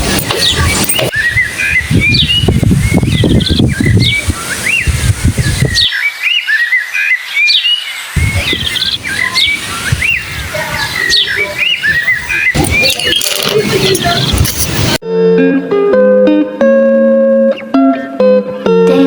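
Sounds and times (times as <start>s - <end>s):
small birds twittering: 0.0s - 15.0s.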